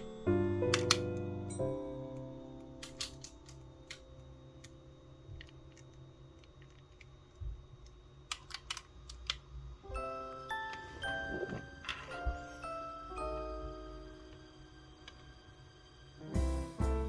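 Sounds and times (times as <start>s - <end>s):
music: 0.0s - 6.6s, 9.8s - 17.0s.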